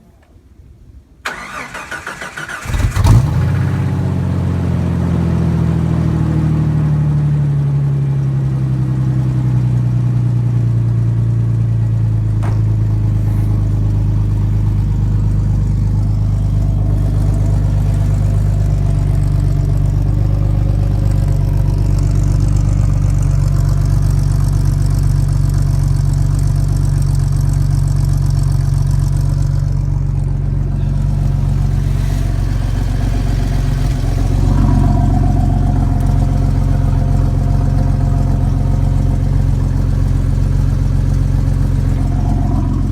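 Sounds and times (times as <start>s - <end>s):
car engine starting and idling: 1.2s - 42.9s
starter motor cranking: 1.3s - 3.4s.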